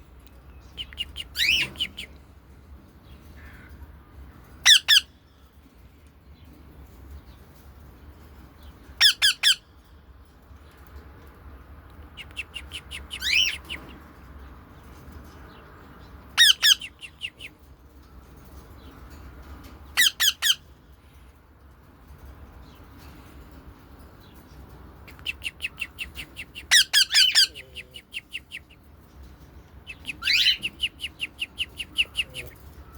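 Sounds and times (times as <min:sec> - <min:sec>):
parrots squawking: 0:01.0 - 0:02.1, 0:04.6 - 0:05.1, 0:09.0 - 0:09.6, 0:12.5 - 0:13.7, 0:16.4 - 0:17.0, 0:20.0 - 0:20.6, 0:25.2 - 0:28.6, 0:29.9 - 0:32.9.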